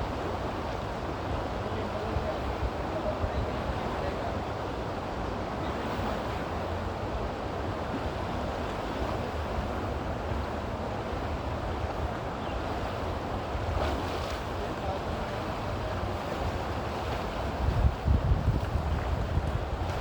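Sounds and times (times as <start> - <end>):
wind buffeting microphone: 16.1 - 20.0.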